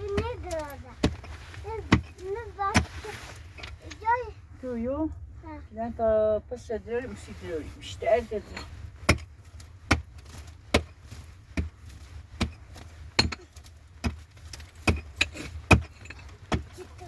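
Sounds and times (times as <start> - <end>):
digging tool striking hard ground: 9.0 - 17.0.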